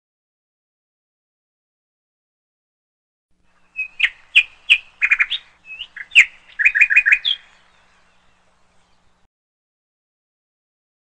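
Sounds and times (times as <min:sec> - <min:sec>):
songbird chirping and trilling: 0:03.4 - 0:09.3.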